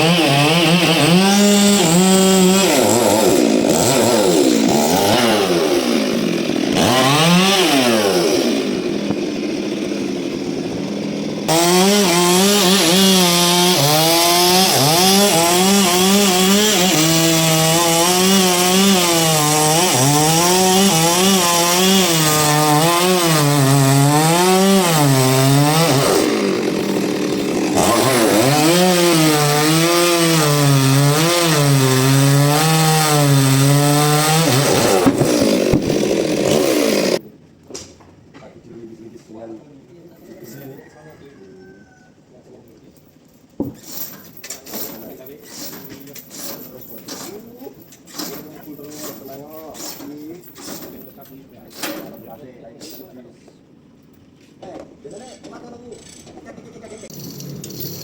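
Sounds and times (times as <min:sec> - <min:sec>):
chainsaw cutting log: 0:00.0 - 0:37.2, 0:57.1 - 0:58.0.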